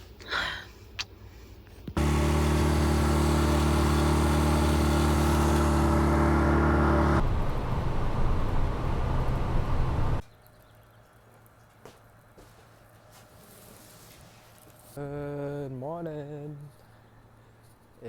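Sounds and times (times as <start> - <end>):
road noise: 2.0 - 10.2
vehicle engine running: 2.0 - 10.2.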